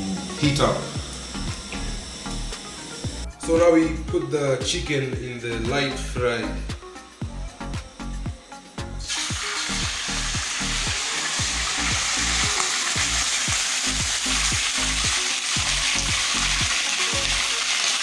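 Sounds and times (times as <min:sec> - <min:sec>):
background music with low beat: 0:00.0 - 0:17.8
chicken sizzling in hot oil: 0:09.0 - 0:18.0.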